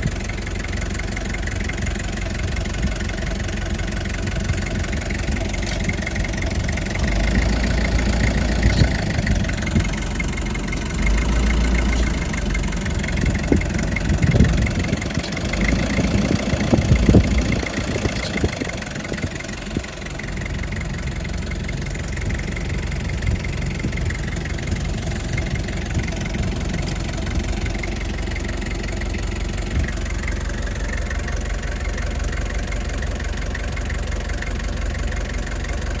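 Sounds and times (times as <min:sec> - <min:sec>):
diesel engine idling: 0:00.0 - 0:36.0.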